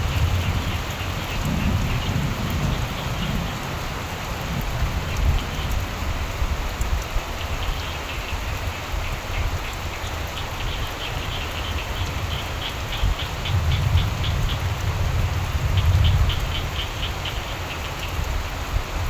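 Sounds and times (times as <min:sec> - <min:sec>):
steady rain falling: 0:00.0 - 0:19.0
frogs calling: 0:07.6 - 0:14.9, 0:15.6 - 0:18.3.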